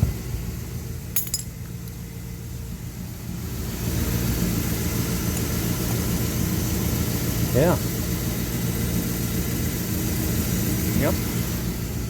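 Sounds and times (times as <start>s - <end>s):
metallic clinks: 1.2s - 1.7s.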